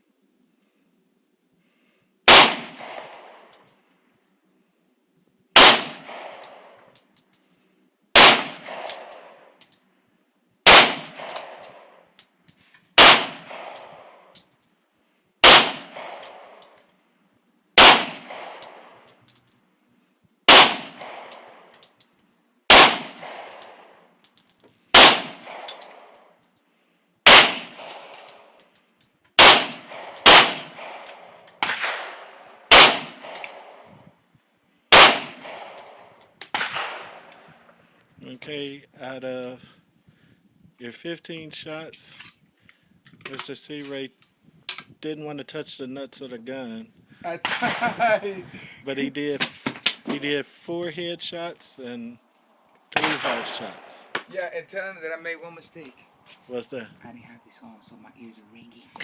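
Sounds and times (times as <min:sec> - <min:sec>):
gunshots echoing: 0:02.3 - 0:03.5, 0:05.6 - 0:06.8, 0:08.2 - 0:09.5, 0:10.7 - 0:12.0, 0:13.0 - 0:14.2, 0:15.4 - 0:16.6, 0:17.8 - 0:19.1, 0:20.5 - 0:21.7, 0:22.7 - 0:24.0, 0:24.9 - 0:26.2, 0:27.3 - 0:28.6, 0:29.4 - 0:33.9, 0:34.9 - 0:37.4, 0:47.4 - 0:48.4, 0:53.0 - 0:54.3.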